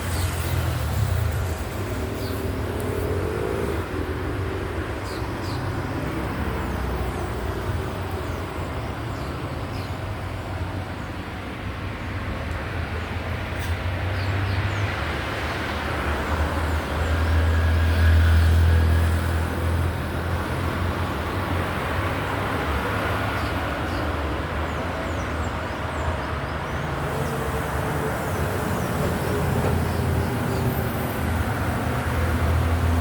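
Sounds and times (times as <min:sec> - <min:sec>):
motor vehicle rumble: 0:00.0 - 0:08.6, 0:25.1 - 0:33.0.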